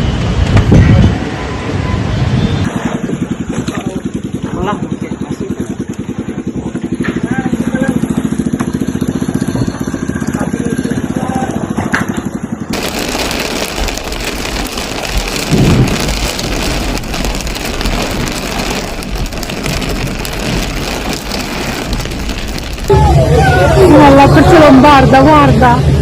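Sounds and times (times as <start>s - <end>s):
low rumble: 12.7s - 24.0s
heavy rain rushing: 12.7s - 25.4s.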